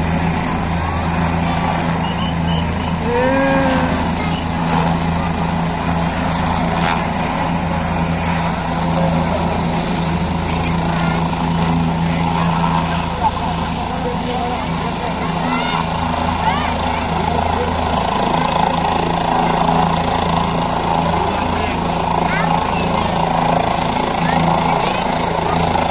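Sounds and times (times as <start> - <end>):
helicopter running: 0.0 - 25.9
onlookers calling out: 0.6 - 5.1, 14.8 - 18.8.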